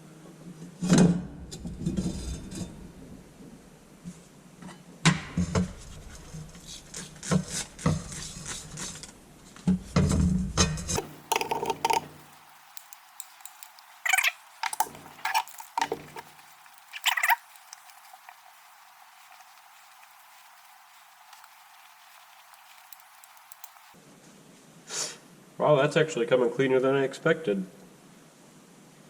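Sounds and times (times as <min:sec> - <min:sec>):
metal parts clinking and clattering: 0:11.0 - 0:18.9.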